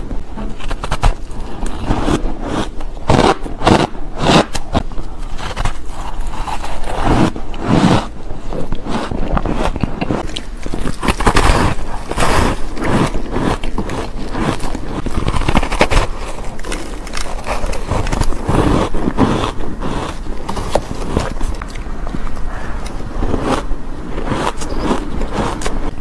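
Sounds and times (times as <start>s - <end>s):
chewing crunchy food: 0.4s - 26.0s.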